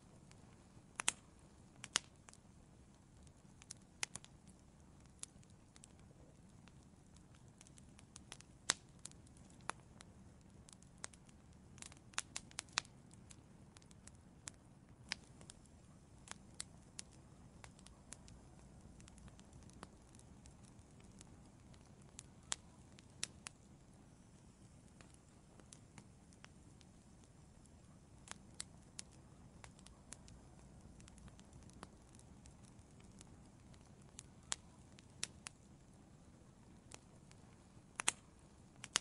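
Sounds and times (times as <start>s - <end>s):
faint low rumble: 0.0s - 39.0s
wood fire crackling: 0.0s - 39.0s.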